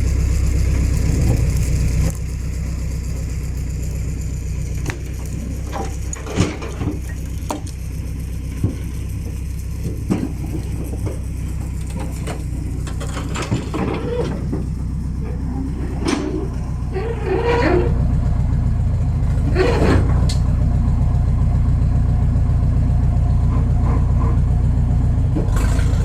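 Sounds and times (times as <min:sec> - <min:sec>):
vehicle engine droning: 0:00.0 - 0:26.0
sharp knocks and clatters: 0:04.8 - 0:07.8, 0:08.5 - 0:14.8.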